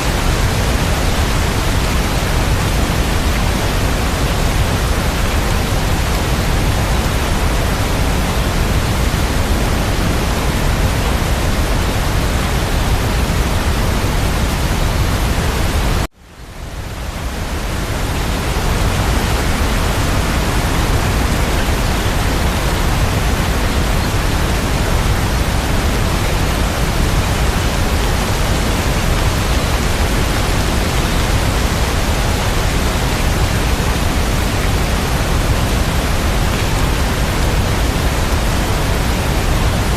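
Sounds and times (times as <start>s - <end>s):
dense rain hiss: 0.0s - 39.9s.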